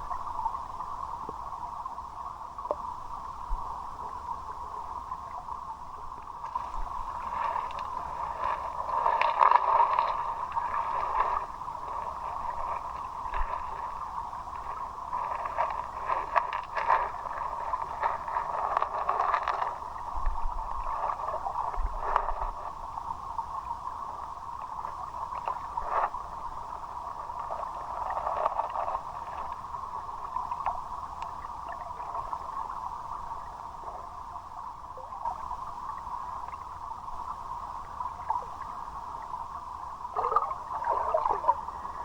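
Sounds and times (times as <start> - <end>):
short splashes and knocks: 6.5 - 14.0.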